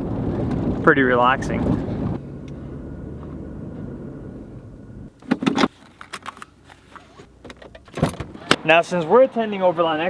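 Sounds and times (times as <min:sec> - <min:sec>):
engine low hum: 0:00.0 - 0:05.3.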